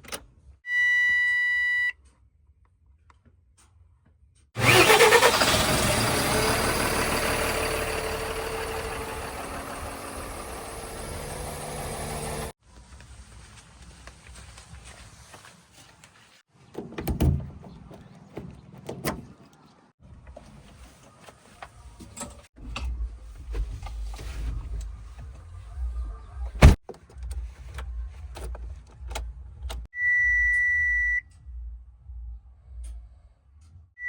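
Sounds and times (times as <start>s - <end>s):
diesel machinery rumble: 4.6s - 12.6s.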